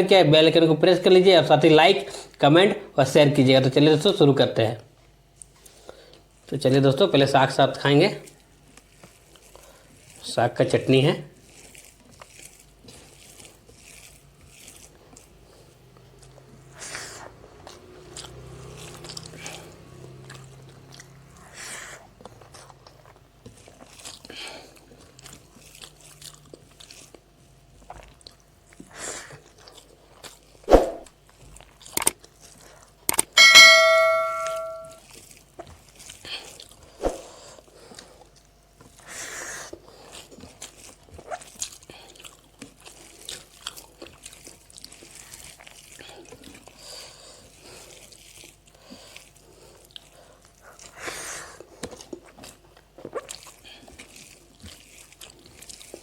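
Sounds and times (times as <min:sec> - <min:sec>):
chewing: 0:08.2 - 0:10.3, 0:11.3 - 0:30.6, 0:31.2 - 0:33.2, 0:35.0 - 0:56.0
metal dish ringing: 0:33.4 - 0:34.9.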